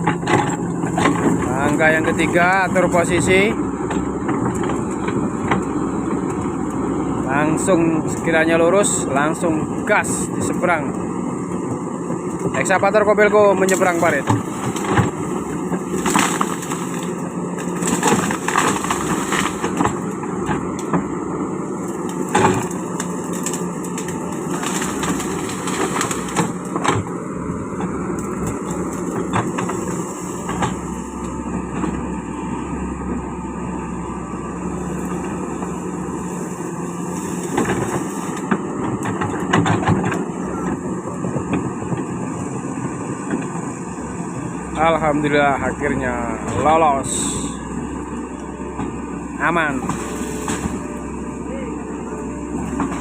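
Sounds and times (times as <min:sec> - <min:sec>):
tracks knocking and clanking: 0:00.0 - 0:06.5, 0:37.1 - 0:43.8
excavator diesel engine running: 0:00.0 - 0:53.0.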